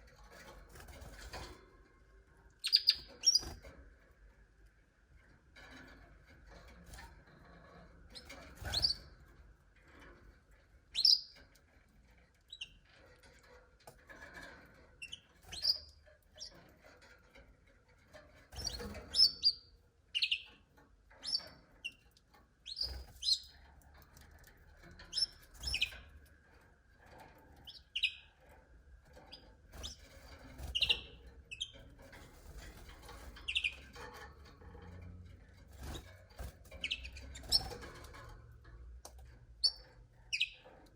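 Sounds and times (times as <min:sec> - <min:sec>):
canaries chirping: 0:00.3 - 0:01.5, 0:02.5 - 0:03.7, 0:08.1 - 0:09.4, 0:10.9 - 0:11.7, 0:12.4 - 0:13.4, 0:14.1 - 0:17.4, 0:18.2 - 0:26.4, 0:27.0 - 0:40.9.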